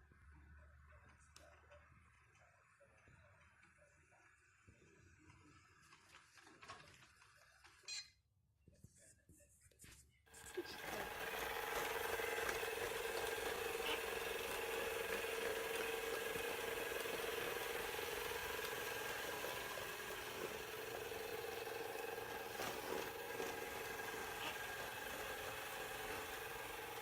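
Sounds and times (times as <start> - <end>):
robot vacuum motor whirring: 10.4 - 27.0.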